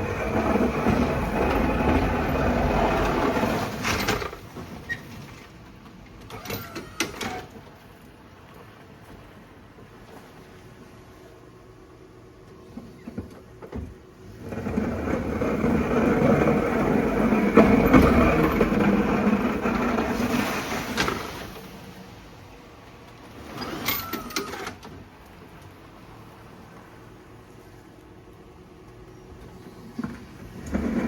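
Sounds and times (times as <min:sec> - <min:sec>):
clattering with ringing tone: 0:23.6 - 0:24.8.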